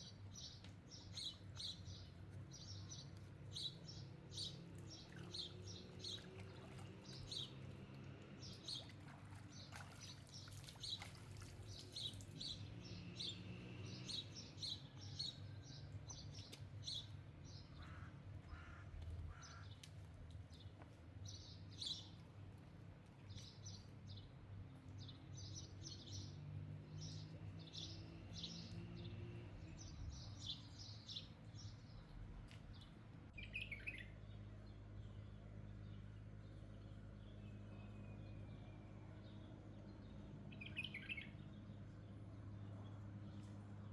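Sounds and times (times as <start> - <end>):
small birds chirping: 0.0 - 14.8, 39.4 - 41.8.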